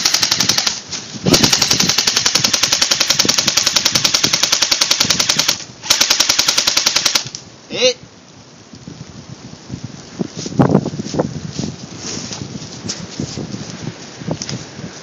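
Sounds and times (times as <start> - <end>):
airsoft gun firing bursts: 0.0 - 7.4.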